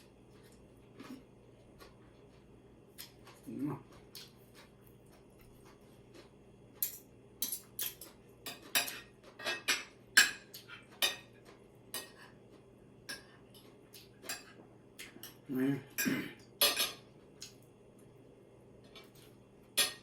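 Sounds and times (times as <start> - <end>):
cutlery clinking against plate: 6.8 - 12.4, 13.1 - 17.6, 18.9 - 20.0.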